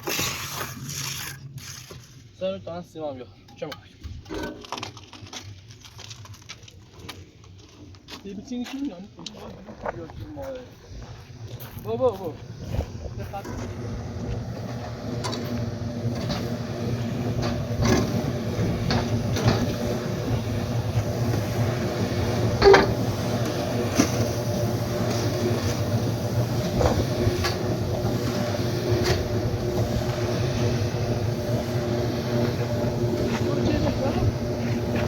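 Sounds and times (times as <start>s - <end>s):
clinks and knocks of work: 3.5s - 6.1s, 14.6s - 16.6s, 17.3s - 20.3s, 22.4s - 24.3s
motor humming: 12.4s - 35.0s.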